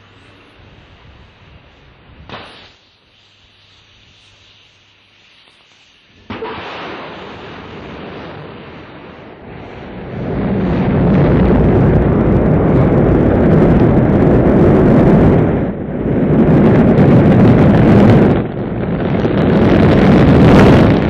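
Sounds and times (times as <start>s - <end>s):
rocket engines igniting: 0.0s - 3.0s, 5.4s - 21.0s
deep rocket rumble: 6.2s - 21.0s.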